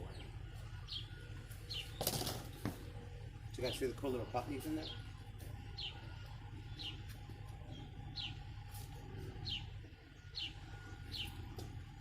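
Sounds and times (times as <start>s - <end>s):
low hum: 0.0s - 12.0s
small bird chirping: 0.1s - 2.7s, 5.7s - 11.8s.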